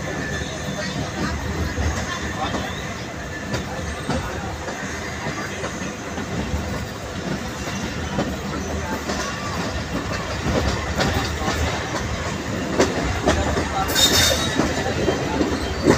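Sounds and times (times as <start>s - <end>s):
train wheels rumbling on rails: 0.0s - 15.9s
wheels clicking over rail joints: 3.4s - 15.9s.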